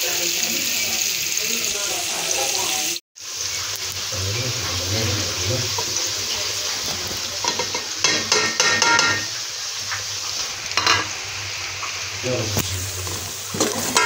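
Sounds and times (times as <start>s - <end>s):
onions sizzling in hot oil: 0.0s - 14.0s
ladle stirring in metal pot: 4.6s - 9.4s, 12.9s - 14.0s.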